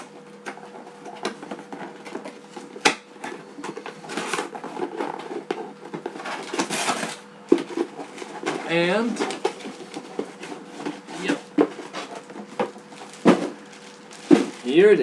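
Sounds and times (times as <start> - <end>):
electric fan humming: 0.0 - 15.0.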